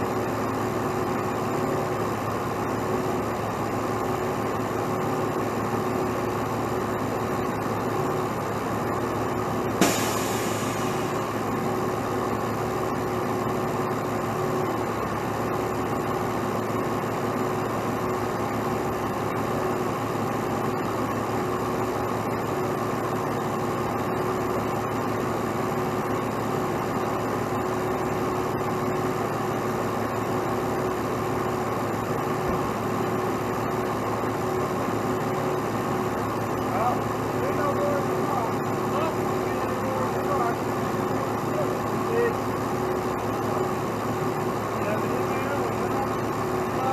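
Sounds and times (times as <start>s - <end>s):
truck engine idling: 0.0s - 46.9s
brief hiss: 9.8s - 11.0s
sharp metallic clank: 9.8s - 11.1s.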